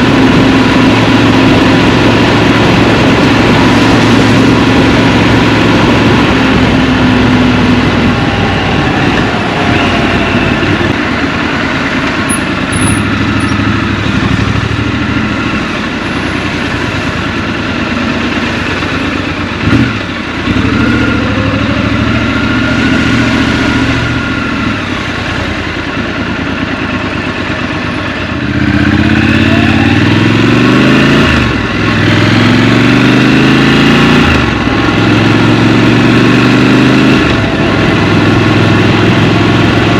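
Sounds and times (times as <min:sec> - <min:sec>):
rushing noise: 0:00.0 - 0:25.5
motorcycle engine: 0:00.0 - 0:39.9.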